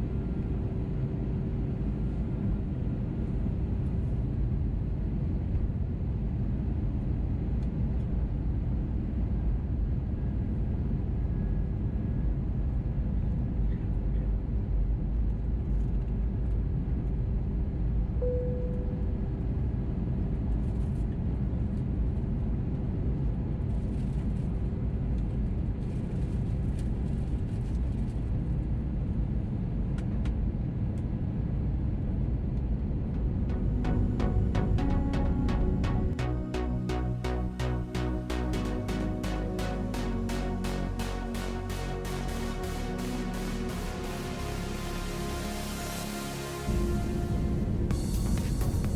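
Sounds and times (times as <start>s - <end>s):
brief tone: 18.2s - 19.5s.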